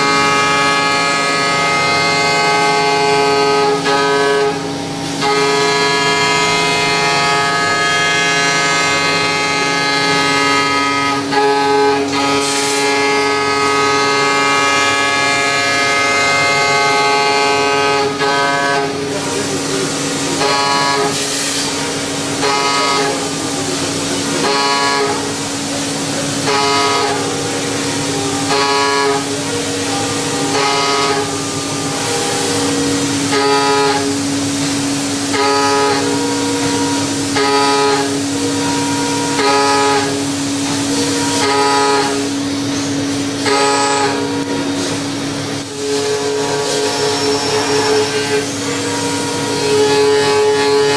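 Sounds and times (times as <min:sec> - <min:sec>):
machine steady whine: 0:00.0 - 0:50.9
shrill cutter squeal: 0:45.6 - 0:50.9.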